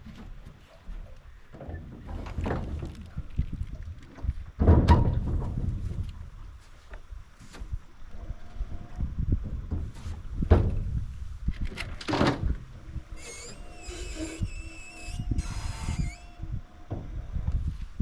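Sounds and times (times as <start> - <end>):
steady hum: 0.1 - 18.0
wind buffeting microphone: 0.8 - 18.0
knocks and thuds: 4.2 - 6.1, 9.4 - 11.0
high wavering squealing: 13.1 - 16.7.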